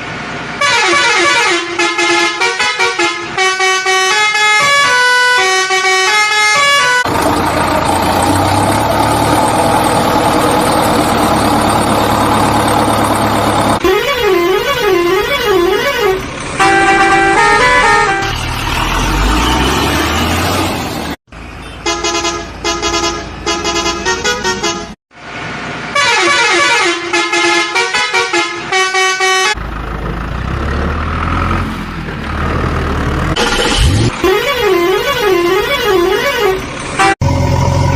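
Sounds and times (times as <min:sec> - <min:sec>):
low vehicle rumble: 0:06.9 - 0:21.7, 0:29.5 - 0:37.9
musical horn tunes: 0:13.8 - 0:18.5, 0:34.2 - 0:37.2
wavering horn tone: 0:13.8 - 0:20.6, 0:33.4 - 0:37.2.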